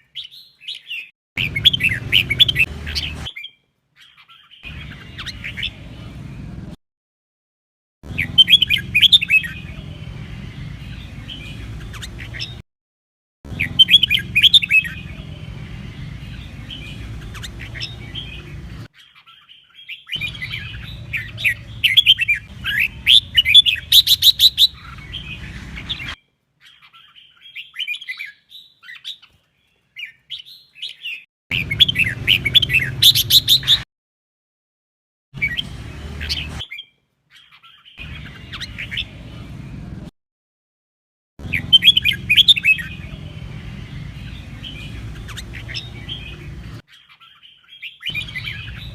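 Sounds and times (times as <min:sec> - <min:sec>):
bird warbling and chattering: 0:00.9 - 0:06.0, 0:10.6 - 0:12.6, 0:13.5 - 0:29.3, 0:31.5 - 0:33.8, 0:37.4 - 0:39.2, 0:41.4 - 0:48.9.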